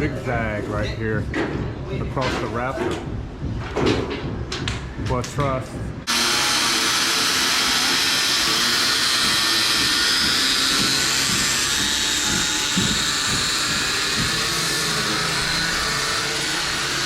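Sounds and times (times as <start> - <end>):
power tool whining: 6.1 - 17.0.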